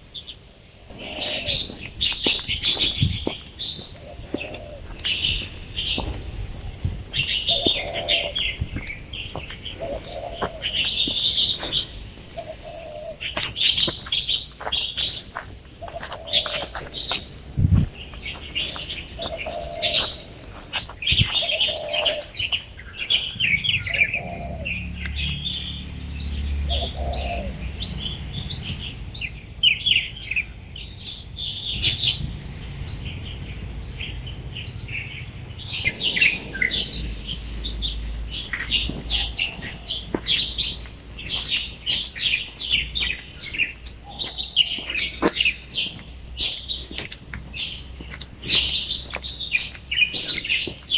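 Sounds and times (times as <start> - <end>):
birds chirping and singing: 0.0 - 50.9
faint low rumble: 35.4 - 41.8.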